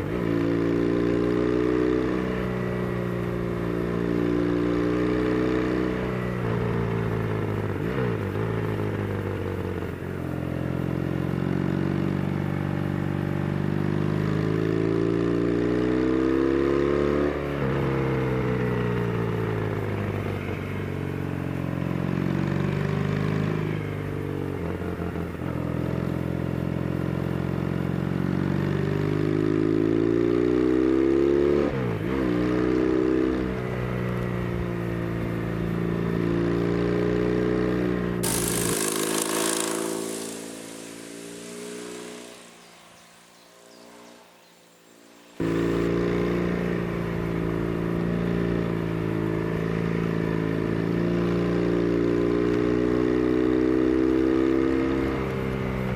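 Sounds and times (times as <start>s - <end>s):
motorcycle engine accelerating: 0.0s - 20.2s, 38.0s - 55.9s.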